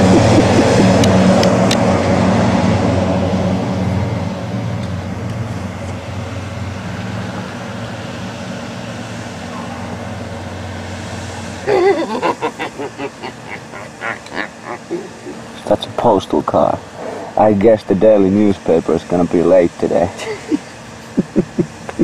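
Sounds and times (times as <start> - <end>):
person laughing: 0.0 - 1.2, 11.6 - 15.6, 20.1 - 22.0
vehicle engine humming: 0.0 - 22.0.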